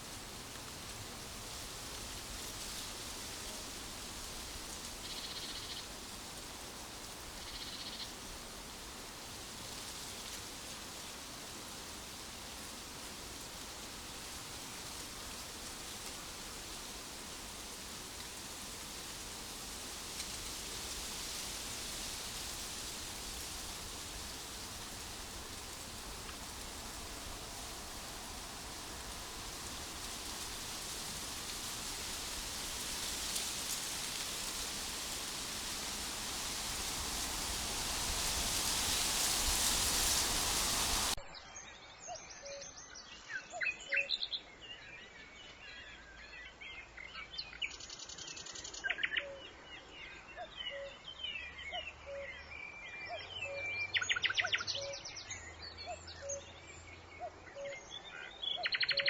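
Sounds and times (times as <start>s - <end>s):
rushing hiss: 0.0s - 41.2s.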